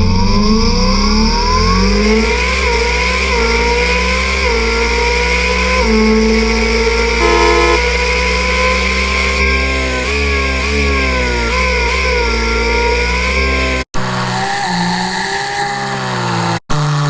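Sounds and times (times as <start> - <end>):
simulated race car engine revving: 0.2 - 17.0.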